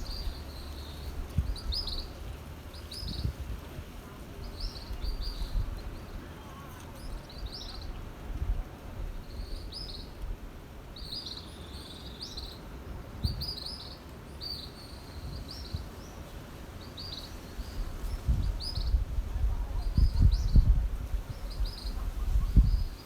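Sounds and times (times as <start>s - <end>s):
birds chirping: 0.0s - 3.6s.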